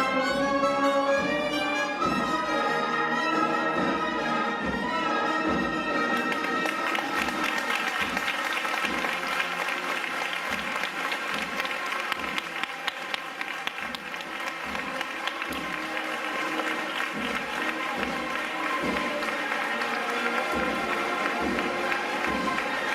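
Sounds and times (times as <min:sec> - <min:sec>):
crowd applauding: 0:06.1 - 0:22.9.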